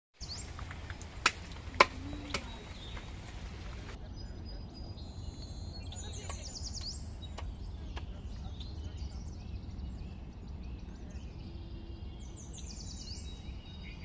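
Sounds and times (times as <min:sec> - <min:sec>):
birds chirping: 0:00.2 - 0:14.0
low background noise: 0:00.2 - 0:14.0.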